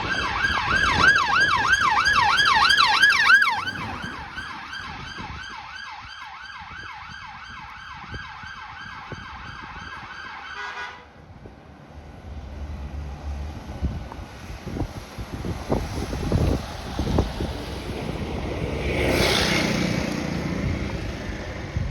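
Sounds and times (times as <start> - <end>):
emergency siren yelping: 0.0 - 10.9
road traffic noise: 0.0 - 21.9.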